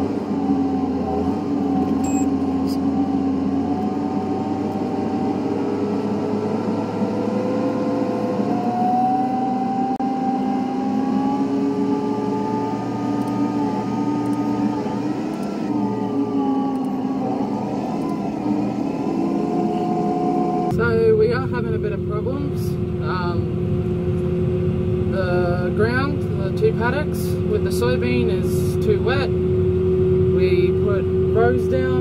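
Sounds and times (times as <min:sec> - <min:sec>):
tractor engine running: 0:10.4 - 0:32.0.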